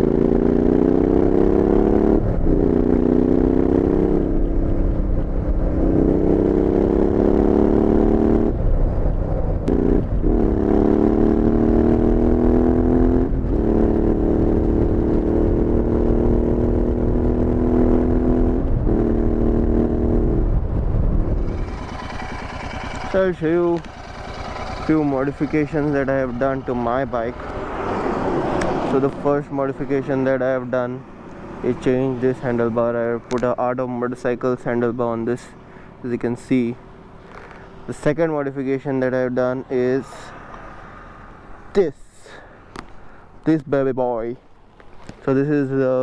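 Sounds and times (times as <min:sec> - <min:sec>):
motorcycle engine under throttle: 0:00.0 - 0:08.6, 0:21.2 - 0:27.7.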